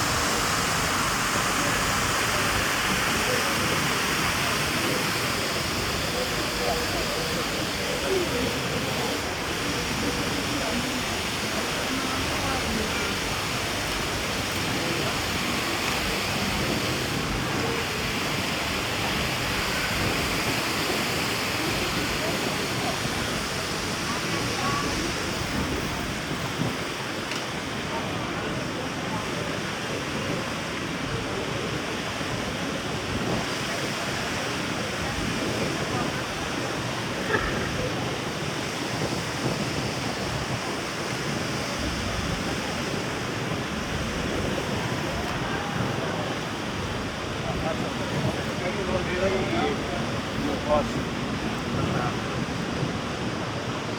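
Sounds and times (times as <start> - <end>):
faint distant voices: 0.0 - 53.9
rushing outdoor ambience: 0.0 - 53.9
surf: 0.0 - 53.9
wind buffeting microphone: 0.0 - 53.9.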